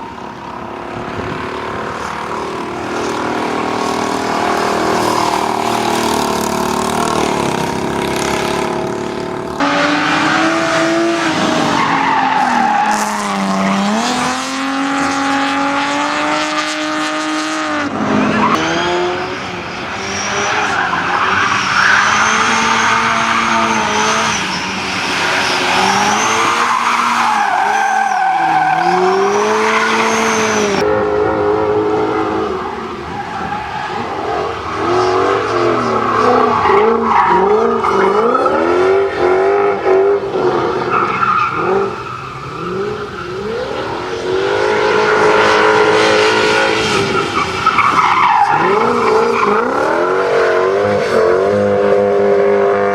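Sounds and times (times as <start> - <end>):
car engine revving: 0.0 - 52.9
tyres squealing: 9.6 - 14.0, 18.2 - 30.8, 31.8 - 50.6.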